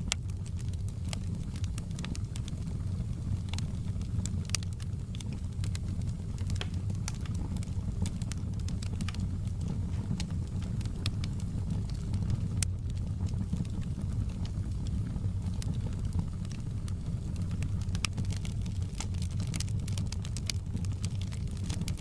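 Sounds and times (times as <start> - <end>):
logs crackling and popping: 0.0 - 22.0
low rumble of flames: 0.0 - 22.0.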